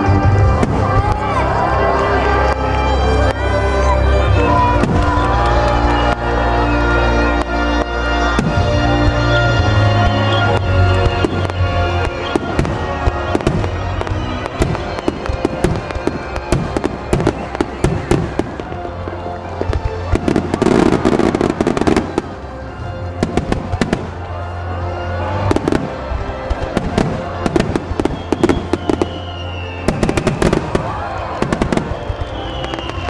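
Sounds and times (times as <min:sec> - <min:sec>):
fireworks bursting and crackling: 0:00.0 - 0:03.5, 0:04.3 - 0:33.0
music playing: 0:00.0 - 0:33.0.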